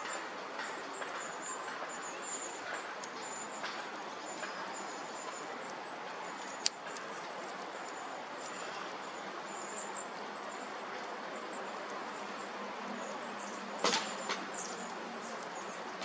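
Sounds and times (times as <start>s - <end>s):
bonfire hissing and crackling: 0.1s - 16.0s
sharp pop from fire: 13.8s - 14.4s.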